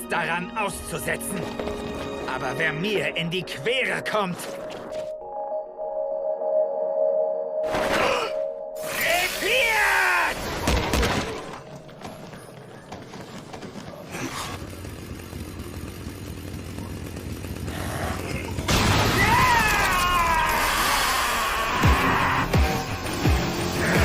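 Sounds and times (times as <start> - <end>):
chainsaw revving: 14.1 - 18.7.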